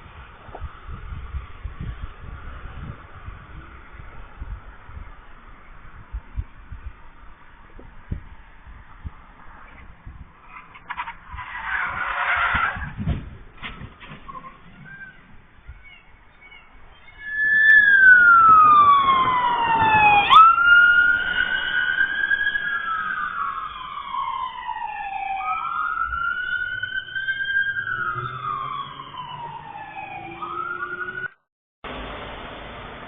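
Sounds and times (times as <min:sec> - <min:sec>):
road noise: 0:00.0 - 0:33.0
emergency siren wailing: 0:16.5 - 0:31.5.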